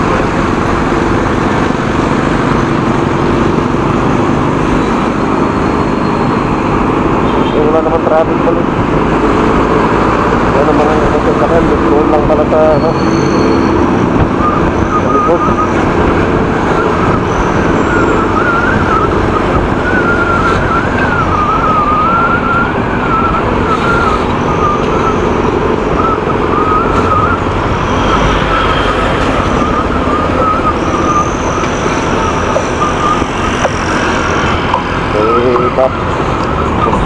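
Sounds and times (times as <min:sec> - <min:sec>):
thin high whistle: 0:12.7 - 0:13.8, 0:14.4 - 0:15.8, 0:16.6 - 0:34.4
wind rushing: 0:13.4 - 0:35.2.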